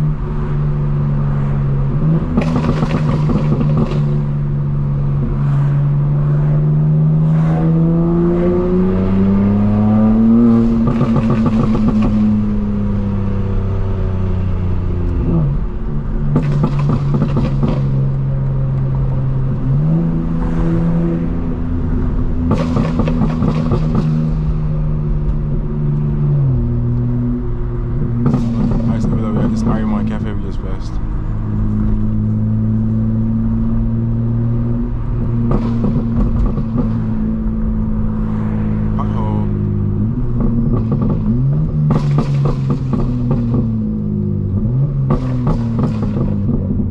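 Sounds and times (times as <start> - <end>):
car engine accelerating and shifting: 0.0 - 46.9
exhaust crackle: 21.5 - 32.9.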